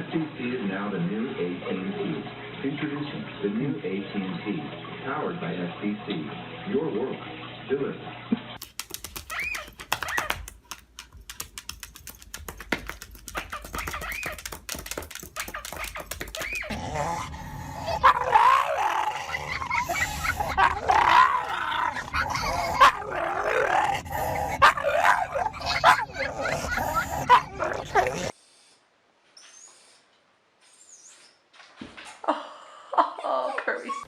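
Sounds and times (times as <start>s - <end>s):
sharp clicks: 8.6s - 16.7s
dog whining and yipping: 9.2s - 10.4s, 13.3s - 14.6s, 15.4s - 18.4s, 19.2s - 20.8s, 21.9s - 23.1s, 24.0s - 28.3s.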